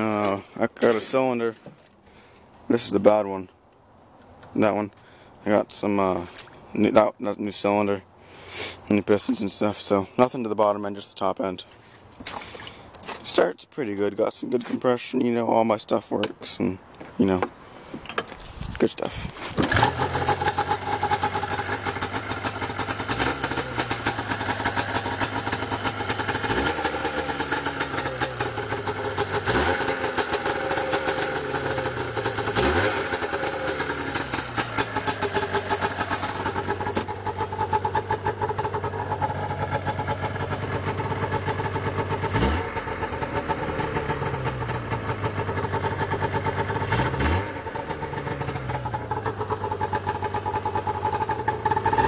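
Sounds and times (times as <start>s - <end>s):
snowmobile engine idling and revving: 19.6s - 52.0s.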